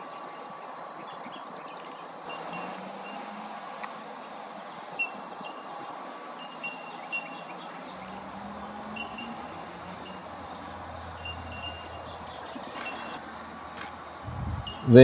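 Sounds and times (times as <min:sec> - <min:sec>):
low hum: 0:07.9 - 0:15.0
steady hiss: 0:08.0 - 0:15.0.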